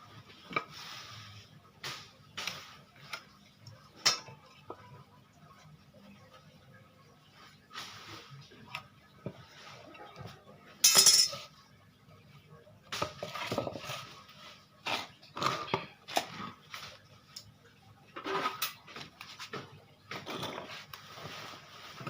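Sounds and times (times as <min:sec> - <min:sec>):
tools clinking on workbench: 0:10.8 - 0:11.5.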